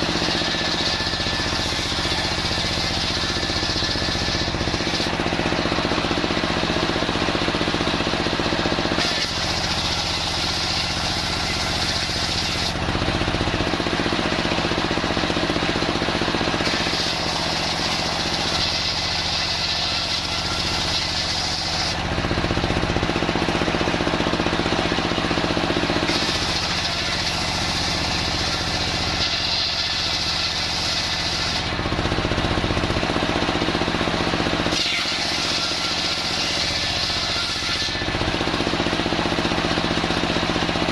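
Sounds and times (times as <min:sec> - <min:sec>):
saw cutting timber hiss: 0:00.0 - 0:05.8, 0:08.9 - 0:12.8, 0:16.6 - 0:22.0, 0:26.0 - 0:31.7, 0:34.7 - 0:38.2
sawmill machine hum: 0:00.0 - 0:40.9.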